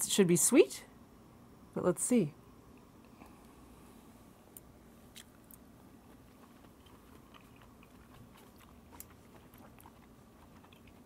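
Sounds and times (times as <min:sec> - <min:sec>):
faint chewing mouth sounds: 0:04.5 - 0:11.0.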